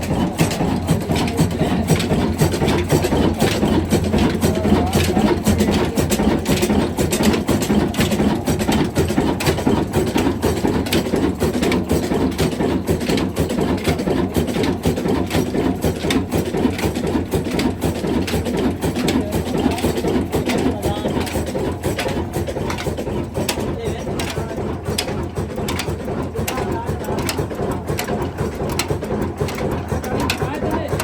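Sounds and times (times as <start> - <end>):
diesel engine clattering: 0.0 - 31.0.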